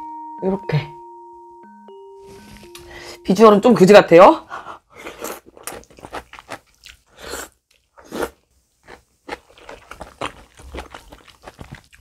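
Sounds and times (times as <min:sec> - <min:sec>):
chewing with soft crunches: 0:05.0 - 0:12.0.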